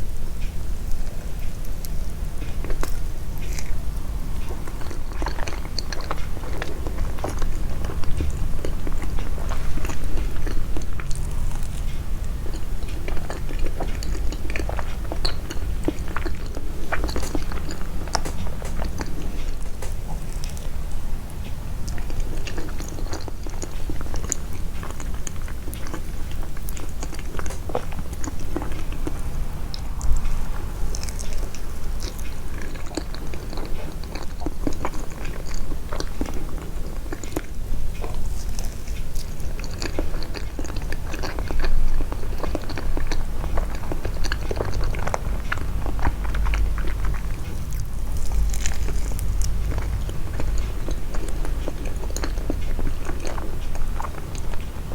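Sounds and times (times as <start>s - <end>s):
chewing soft sweets: 0.0s - 54.9s
low hum: 40.6s - 54.9s.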